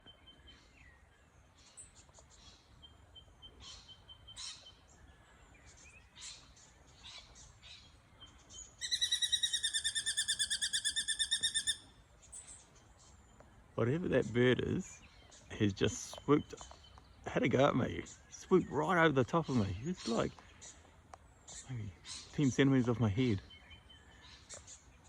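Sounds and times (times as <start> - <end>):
faint bird calls: 0.0 - 25.0
bird chattering alarm call: 8.8 - 11.9.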